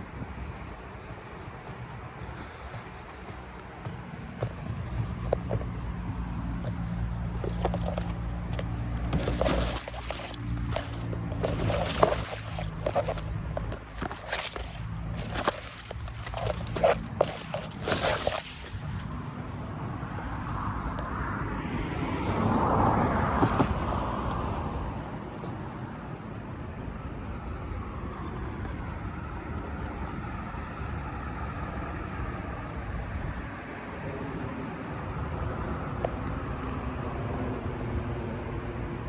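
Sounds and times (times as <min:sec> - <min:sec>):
low traffic rumble: 0:00.6 - 0:20.8
sharp knocks or scrapes: 0:07.4 - 0:19.1.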